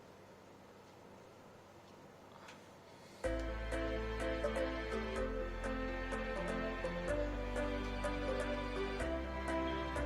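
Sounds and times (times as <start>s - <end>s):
soft electronic music: 3.2s - 10.0s.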